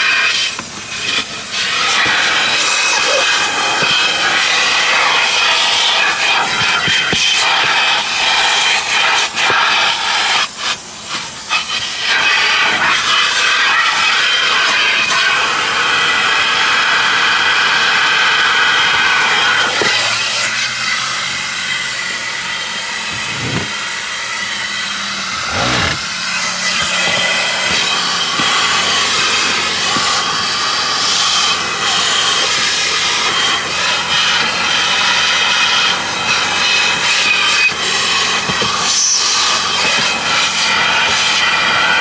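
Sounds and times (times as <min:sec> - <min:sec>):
high-pressure water spray hissing: 0:00.0 - 0:42.0
high pump whine: 0:19.7 - 0:42.0.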